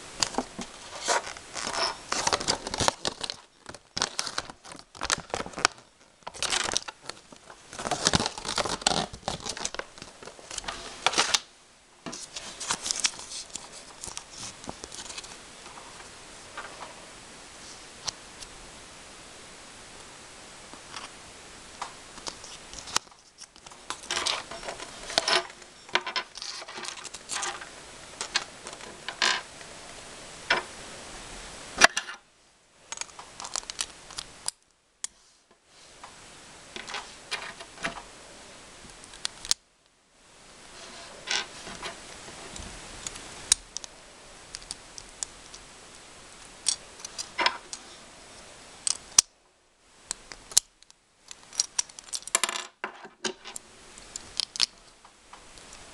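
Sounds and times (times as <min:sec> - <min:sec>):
plastic packaging crackling: 0:00.2 - 0:11.5, 0:12.1 - 0:15.4, 0:22.1 - 0:29.4.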